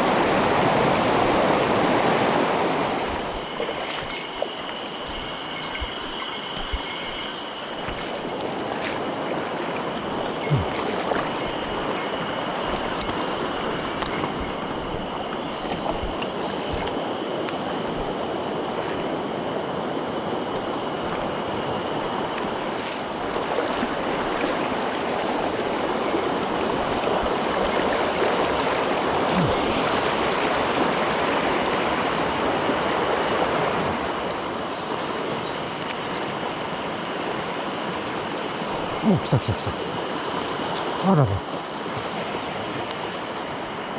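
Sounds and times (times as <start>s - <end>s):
stream water rushing: 0.0s - 43.9s
thin high tone: 3.9s - 8.4s.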